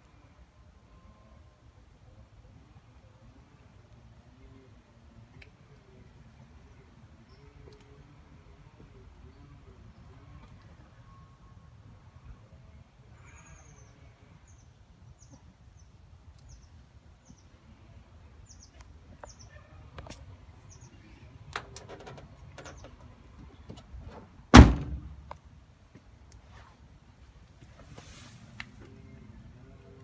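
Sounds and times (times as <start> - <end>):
car door shutting: 24.1 - 25.2.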